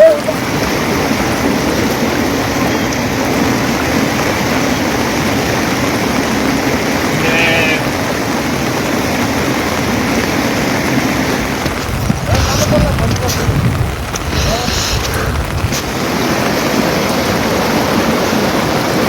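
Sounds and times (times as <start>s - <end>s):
rushing water: 0.0s - 19.0s
brief pitched call: 7.2s - 7.9s.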